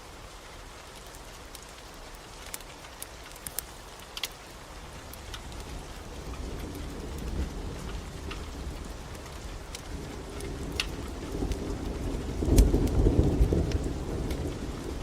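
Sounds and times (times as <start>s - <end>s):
crackling wood fire: 0.0s - 15.0s
steady rain: 0.0s - 15.0s
low rumble of thunder: 5.3s - 15.0s.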